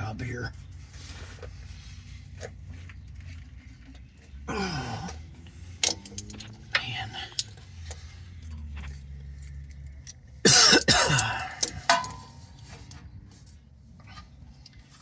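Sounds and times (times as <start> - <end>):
man coughing: 10.4 - 11.6.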